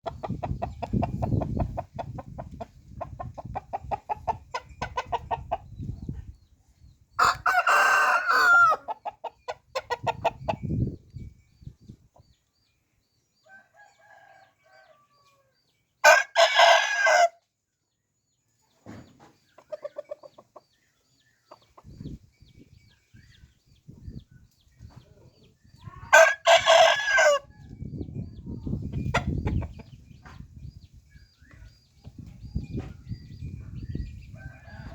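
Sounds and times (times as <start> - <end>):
chickens clucking: 0.0 - 6.4, 7.2 - 12.5, 18.8 - 34.9
rooster crowing: 7.2 - 8.9, 13.4 - 17.4, 26.1 - 27.5, 34.4 - 34.9.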